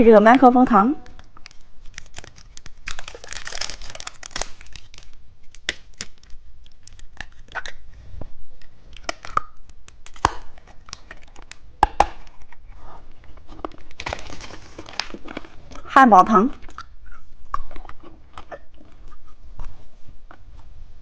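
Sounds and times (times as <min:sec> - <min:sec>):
plastic wrapper crinkling: 0:01.0 - 0:07.9, 0:08.6 - 0:15.9.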